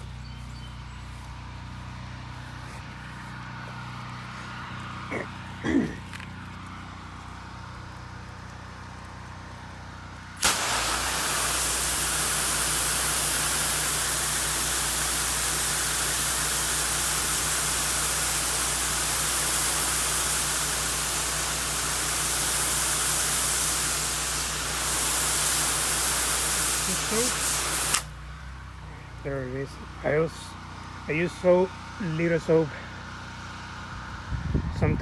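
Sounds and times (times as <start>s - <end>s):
pressure washer humming: 10.2s - 33.9s
high-pressure water spray hissing: 10.4s - 28.2s.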